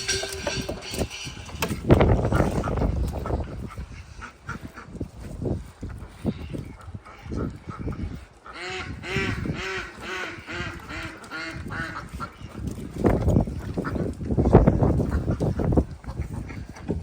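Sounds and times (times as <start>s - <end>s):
low rustling: 0.0s - 3.9s
duck quacking: 7.0s - 12.5s.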